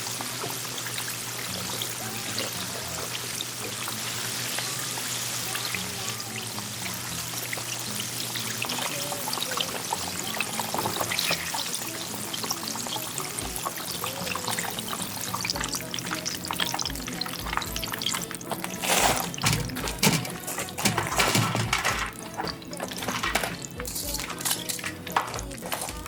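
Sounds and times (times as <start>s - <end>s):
background music: 0.0s - 26.0s
chicken sizzling in hot oil: 0.0s - 26.0s.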